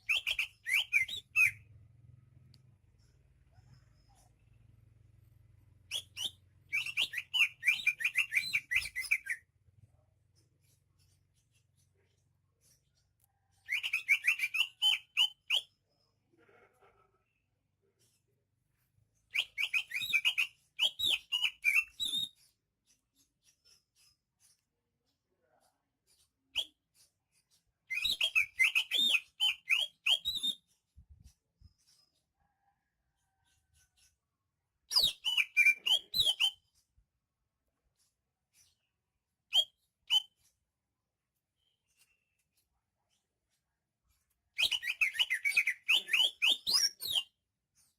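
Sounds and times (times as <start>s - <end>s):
bird singing whistled notes: 0.0s - 1.7s, 5.8s - 9.5s, 13.6s - 15.9s, 19.3s - 22.4s, 26.4s - 26.9s, 27.9s - 30.8s, 34.9s - 36.7s, 39.5s - 40.4s, 44.6s - 47.3s
bird chirping song: 0.0s - 16.3s, 17.3s - 47.9s.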